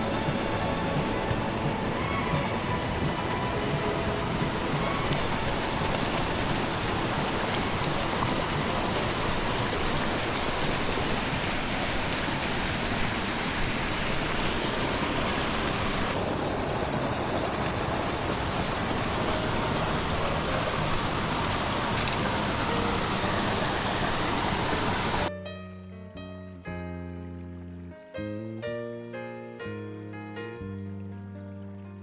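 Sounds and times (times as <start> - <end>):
stream water rushing: 0.0 - 25.3.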